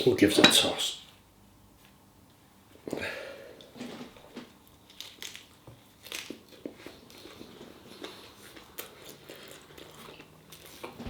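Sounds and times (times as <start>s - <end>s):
person chewing crunchy food: 4.9s - 10.9s.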